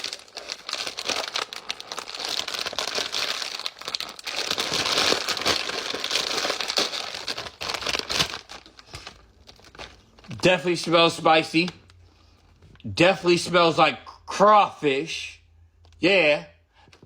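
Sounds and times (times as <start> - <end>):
chip bag crinkling: 0.0 - 12.0.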